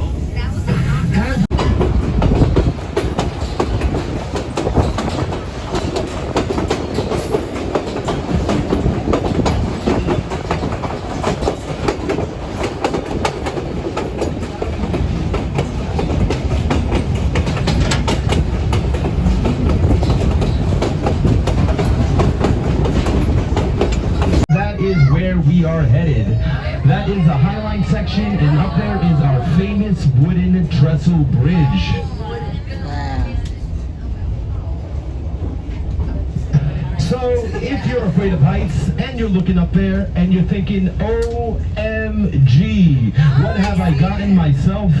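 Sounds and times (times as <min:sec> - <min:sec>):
train car rattling: 0:00.0 - 0:45.0
train car rumbling: 0:00.0 - 0:45.0
wheels clicking over rails: 0:01.5 - 0:24.5.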